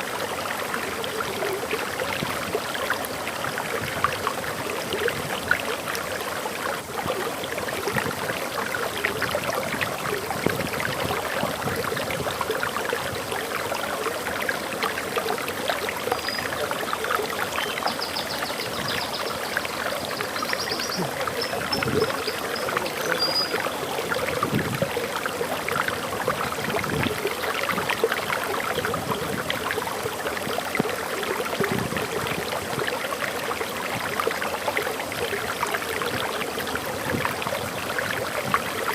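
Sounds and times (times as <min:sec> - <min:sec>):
waterfall rushing: 0:12.3 - 0:32.8
bird chirping: 0:20.1 - 0:23.8.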